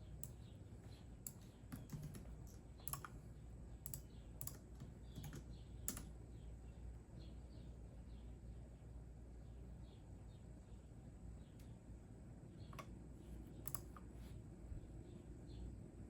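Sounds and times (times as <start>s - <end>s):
keyboard key clicks: 13.7s - 14.0s.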